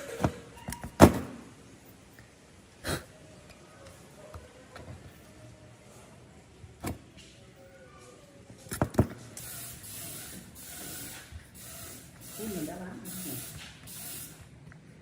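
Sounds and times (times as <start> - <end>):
aerosol can spraying: 9.4 - 14.5.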